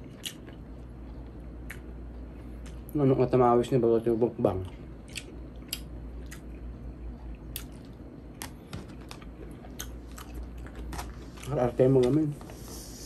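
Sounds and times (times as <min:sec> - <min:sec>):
person chewing with wet smacks: 0:00.0 - 0:01.9, 0:04.6 - 0:11.6
low steady hum: 0:00.0 - 0:13.0.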